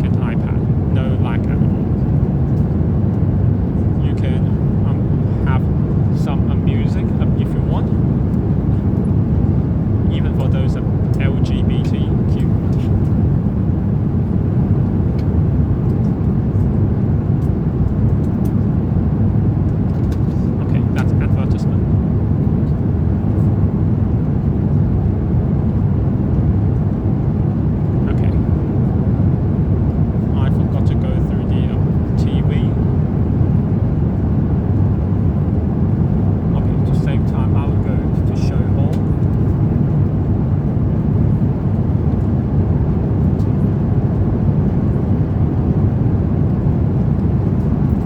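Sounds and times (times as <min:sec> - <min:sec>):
airplane cabin rumble: 0:00.0 - 0:48.0.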